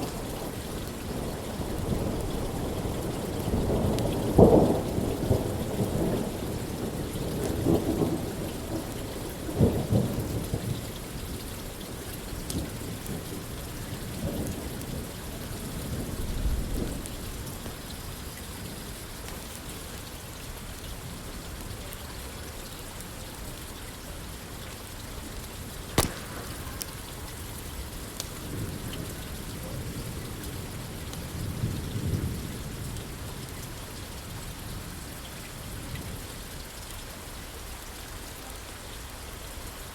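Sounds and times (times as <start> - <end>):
rain falling on a roof: 0.0 - 39.9
sharp crack: 26.0 - 27.5
thunder rumbling: 26.0 - 33.1.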